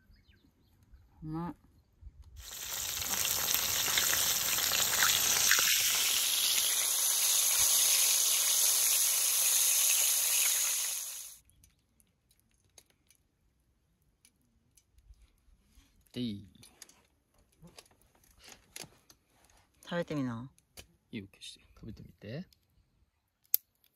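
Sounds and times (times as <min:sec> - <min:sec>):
food sizzling in a hot pan: 0:02.4 - 0:11.4.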